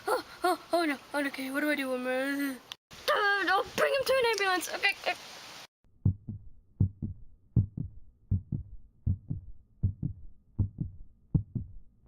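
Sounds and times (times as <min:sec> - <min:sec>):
heartbeat thumps: 0:06.0 - 0:12.0.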